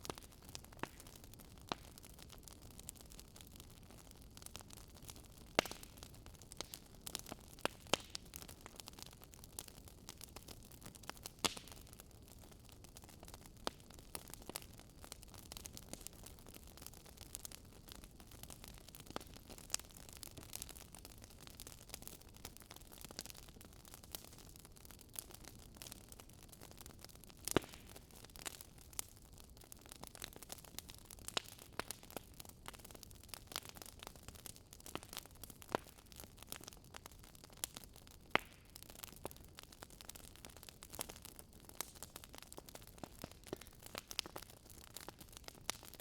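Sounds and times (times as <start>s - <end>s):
campfire crackling and popping: 0.0s - 46.0s.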